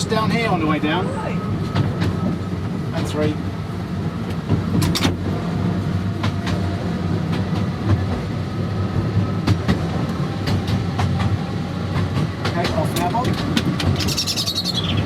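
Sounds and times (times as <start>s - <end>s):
electric tram running: 0.0s - 15.0s
sharp track clicks: 9.4s - 14.7s.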